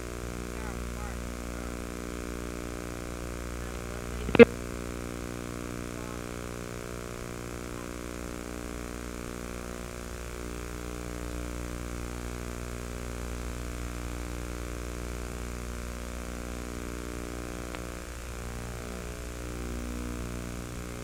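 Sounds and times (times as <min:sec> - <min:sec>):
steady tonal hum: 0:00.0 - 0:15.4.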